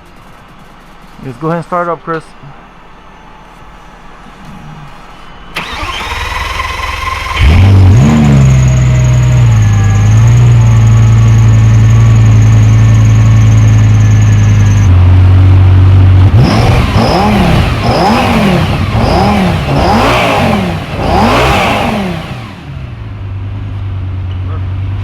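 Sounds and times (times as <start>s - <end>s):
car engine idling and revving: 5.6s - 25.0s.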